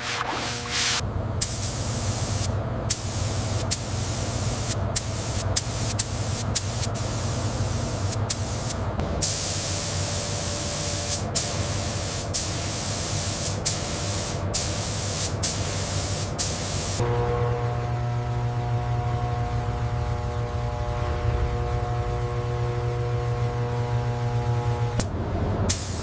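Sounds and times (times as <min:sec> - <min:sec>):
loud pressurised hiss: 0:00.0 - 0:17.0
low steady hum: 0:17.0 - 0:25.7.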